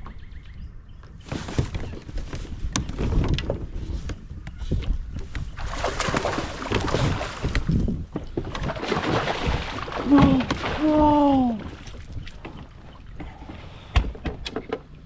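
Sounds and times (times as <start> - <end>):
wind noise buffeting: 0.5 - 12.9
water rushing: 8.7 - 12.0.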